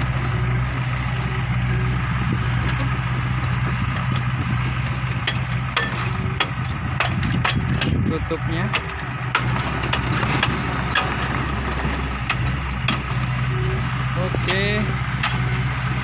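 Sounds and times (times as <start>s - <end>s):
truck engine idling: 0.0s - 16.0s
sharp clicks and knocks: 5.2s - 8.1s, 14.4s - 15.5s.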